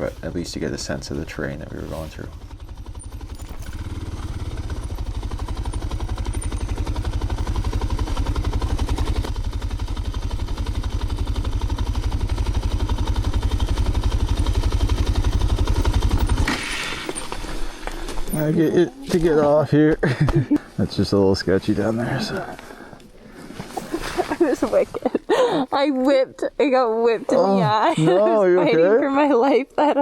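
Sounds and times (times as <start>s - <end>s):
motorcycle engine running: 0.0s - 20.5s.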